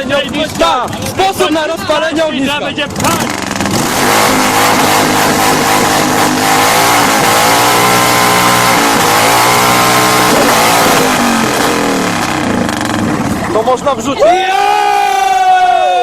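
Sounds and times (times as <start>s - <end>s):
motorcycle engine revving hard: 2.6s - 13.7s.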